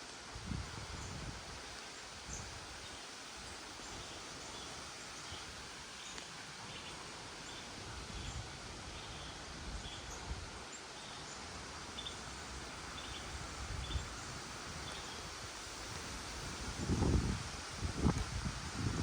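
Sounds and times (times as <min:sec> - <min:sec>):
wind rushing through foliage: 0:00.0 - 0:19.0
wind buffeting microphone: 0:00.4 - 0:01.6, 0:13.3 - 0:15.0, 0:15.9 - 0:19.0.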